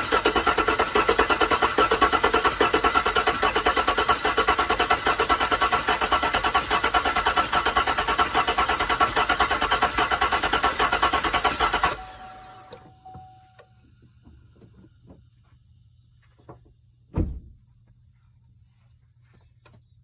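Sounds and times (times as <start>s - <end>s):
engine idling with misfire: 0.0s - 13.2s.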